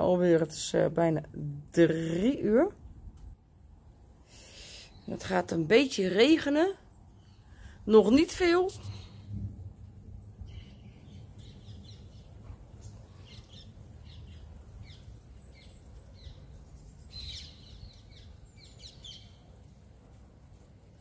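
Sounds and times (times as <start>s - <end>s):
small birds chirping: 4.2s - 9.4s, 10.3s - 20.0s
steady low rumble: 8.8s - 17.2s.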